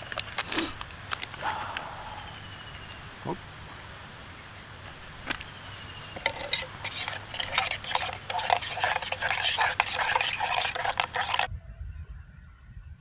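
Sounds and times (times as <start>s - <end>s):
spoon clinking in a cup: 6.2s - 11.5s.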